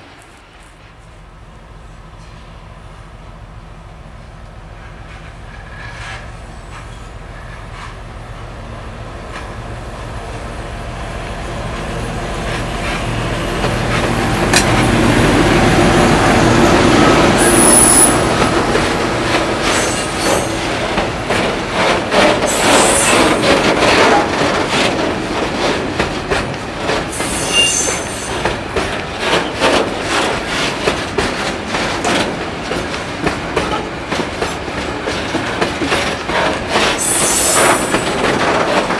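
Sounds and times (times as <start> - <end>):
high wheel squeal: 17.4 - 18.4, 19.6 - 20.7, 22.5 - 23.4, 27.1 - 28.6, 36.9 - 38.0
wheels clattering over rail joints: 17.4 - 38.9.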